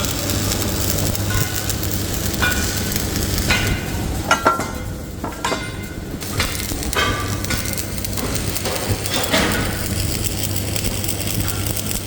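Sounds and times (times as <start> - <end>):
machine hum: 0.0 - 12.0
metal clanks and knocks: 3.4 - 9.9.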